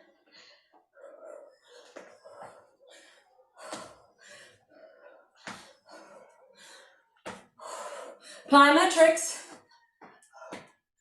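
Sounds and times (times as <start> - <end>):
woman breathing hard: 0.0 - 8.5.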